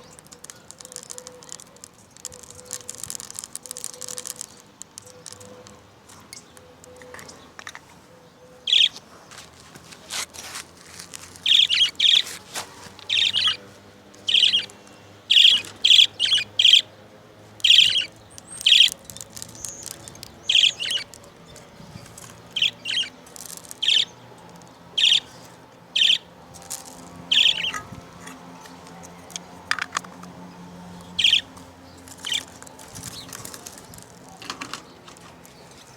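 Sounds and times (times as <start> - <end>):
budgerigars chirping: 8.6 - 9.0, 11.4 - 12.2, 13.0 - 13.6, 14.2 - 16.9, 17.6 - 23.2, 23.8 - 24.2, 24.9 - 26.3, 27.2 - 28.4, 31.0 - 34.6.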